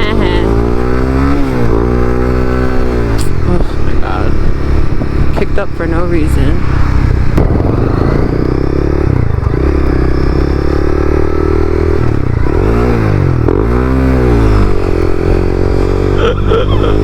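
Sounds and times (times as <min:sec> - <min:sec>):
motorcycle engine revving: 0:00.0 - 0:17.0
wind noise: 0:02.5 - 0:10.5.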